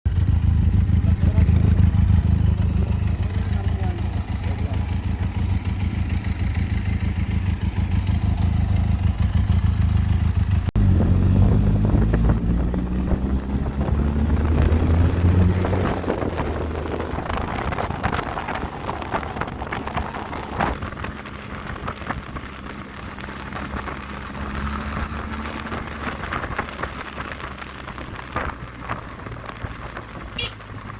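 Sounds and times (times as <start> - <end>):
motorcycle engine running: 0.1 - 30.9
wind and road rush: 0.1 - 30.9.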